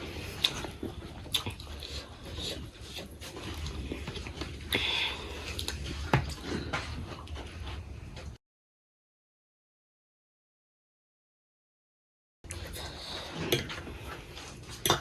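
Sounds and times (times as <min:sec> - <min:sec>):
chewing with mouth clicks: 0:00.1 - 0:07.5.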